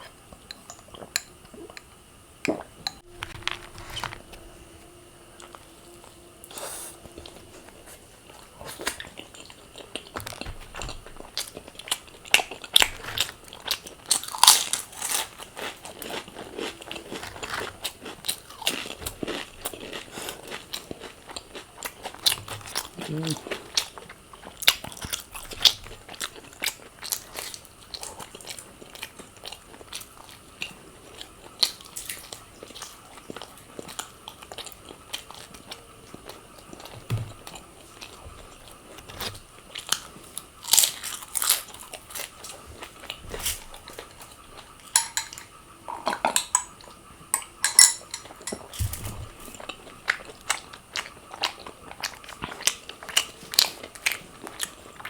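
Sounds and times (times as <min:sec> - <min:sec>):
person crunching food: 0:08.3 - 0:29.9, 0:36.7 - 0:45.2.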